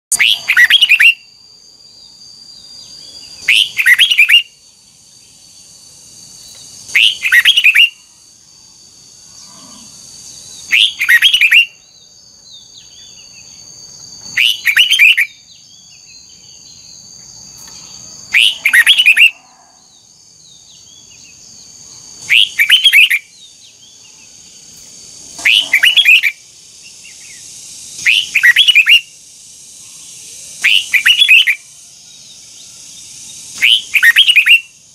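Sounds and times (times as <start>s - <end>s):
bird singing: 0.1s - 34.9s
high-pitched whine: 24.0s - 34.8s.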